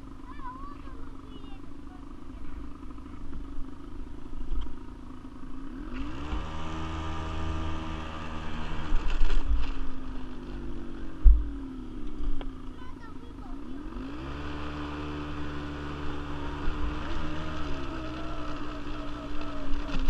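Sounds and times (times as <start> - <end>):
quad bike engine idling and revving: 0.0 - 20.0.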